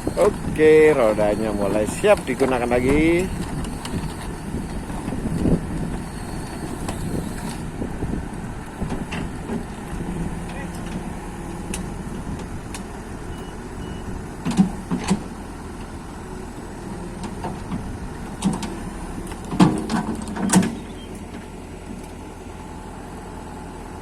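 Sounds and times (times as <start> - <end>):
machine engine running: 0.0 - 7.7.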